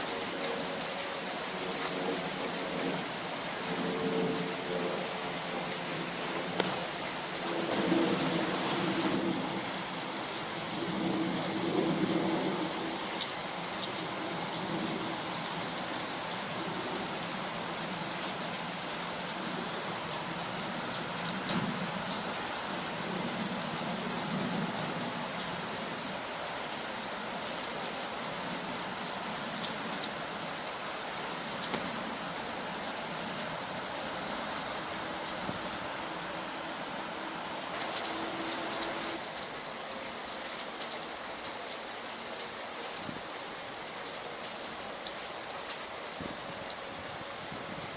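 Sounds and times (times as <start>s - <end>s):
steady rain falling: 0.0s - 47.9s
single raindrop ticks: 31.6s - 31.9s.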